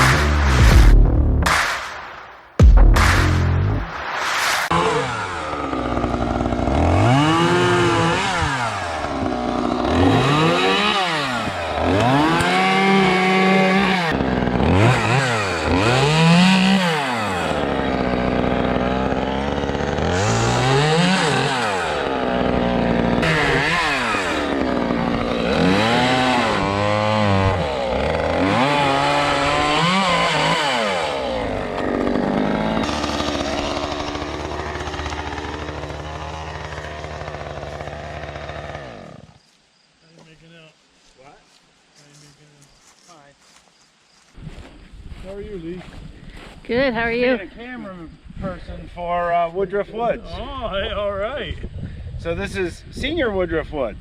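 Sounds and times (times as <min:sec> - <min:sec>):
chainsaw cutting wood: 0:00.0 - 0:39.5.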